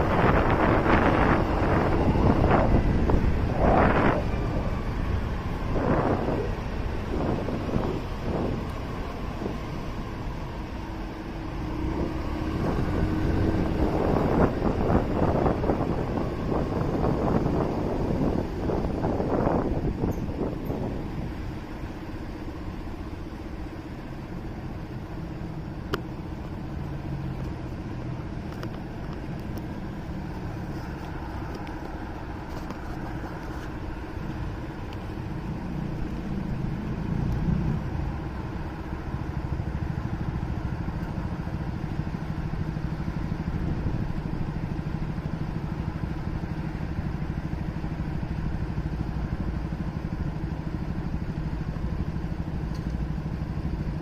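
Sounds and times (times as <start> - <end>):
motorcycle engine: 0.0 - 54.0
road noise: 0.0 - 54.0.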